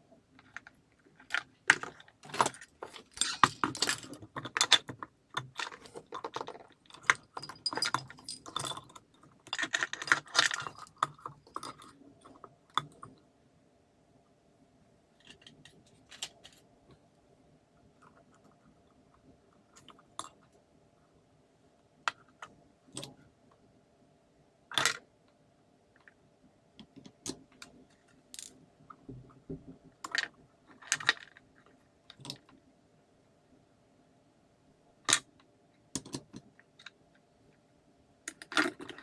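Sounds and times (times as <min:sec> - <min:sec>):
faint steady hum: 0:00.0 - 0:39.0
hand tools being handled: 0:01.7 - 0:04.8
small plastic parts clicking: 0:15.2 - 0:16.6, 0:35.1 - 0:37.0, 0:38.3 - 0:39.0.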